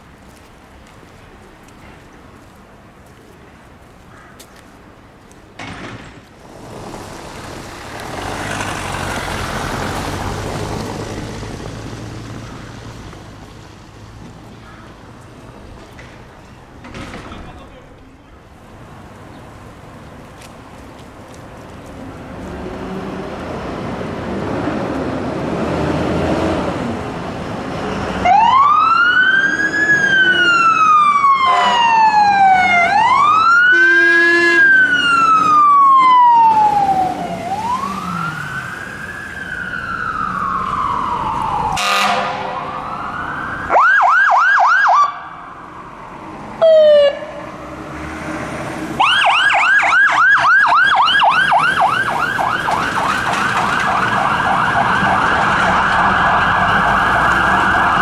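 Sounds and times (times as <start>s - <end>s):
diesel truck engine: 6.3s - 20.1s
sirens wailing and yelping: 28.0s - 47.5s, 48.8s - 58.0s
horn blast: 41.8s - 42.6s.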